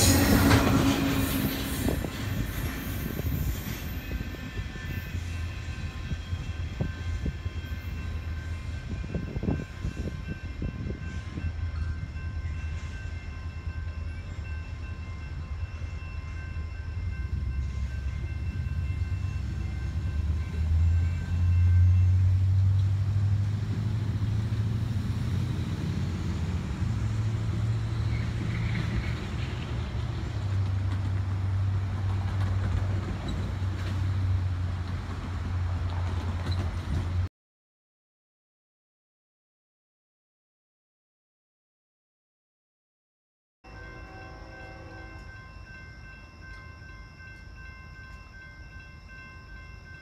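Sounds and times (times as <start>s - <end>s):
train rumbling: 0.0s - 37.3s.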